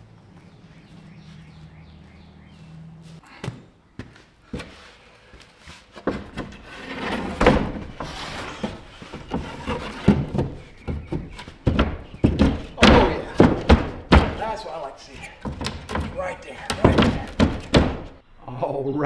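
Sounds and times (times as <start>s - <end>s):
wooden board knocking and thudding: 6.0s - 18.2s.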